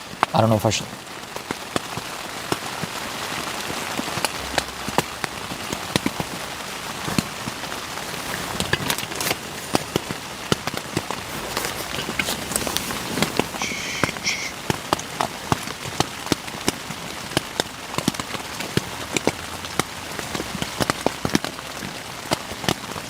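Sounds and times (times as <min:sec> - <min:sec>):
rain hissing on a tent: 0:00.0 - 0:23.0
sharp raindrop taps: 0:00.0 - 0:23.0.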